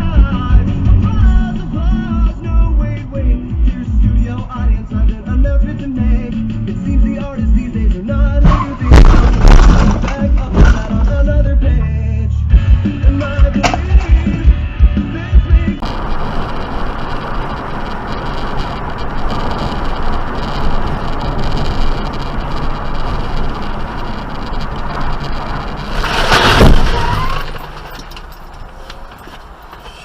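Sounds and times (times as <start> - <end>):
car road noise: 0.0 - 30.0
loud burst of noise: 8.7 - 10.2, 15.8 - 28.8.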